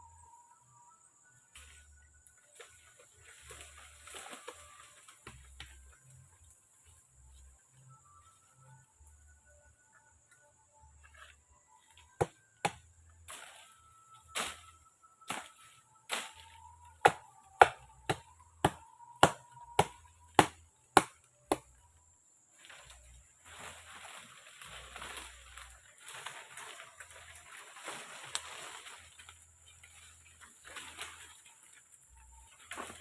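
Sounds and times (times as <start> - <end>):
rustling and splashing: 2.6 - 5.2, 22.9 - 33.0.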